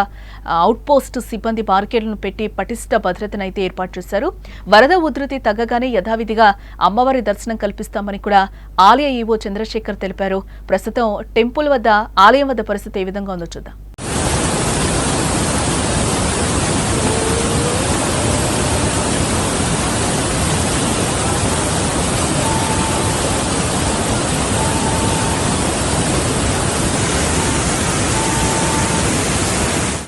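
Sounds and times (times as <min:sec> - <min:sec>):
river water rushing: 0:14.0 - 0:30.0.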